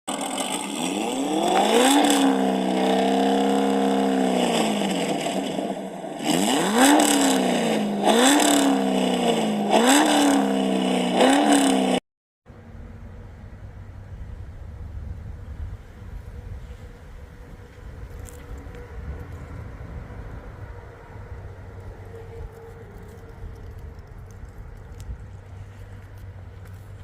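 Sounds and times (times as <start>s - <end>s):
car engine revving: 0.1s - 12.0s.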